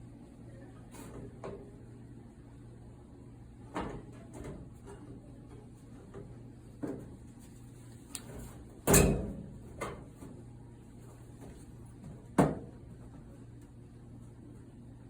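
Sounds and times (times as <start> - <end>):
dryer parts knocking and clunking: 8.8 - 10.2.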